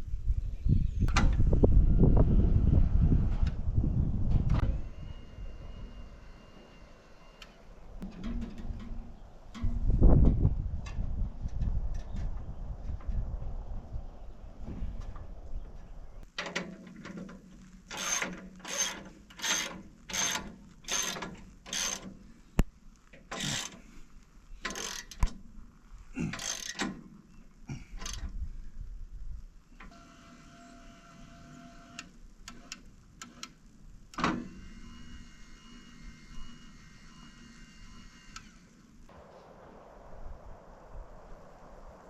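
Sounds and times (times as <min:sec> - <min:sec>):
faint steady whine: 0:01.4 - 0:12.0, 0:17.5 - 0:42.0
metal mechanism ratcheting: 0:17.9 - 0:22.2, 0:24.6 - 0:25.2, 0:26.3 - 0:27.0.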